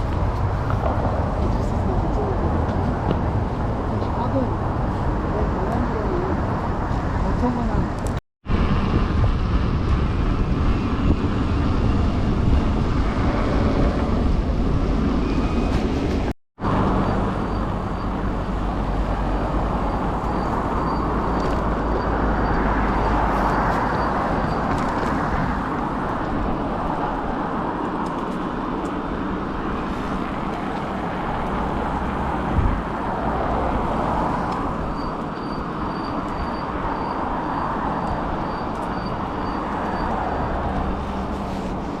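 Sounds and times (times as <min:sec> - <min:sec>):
vehicle rumbling on the move: 0:00.0 - 0:42.0
wind rushing over microphone: 0:00.0 - 0:42.0.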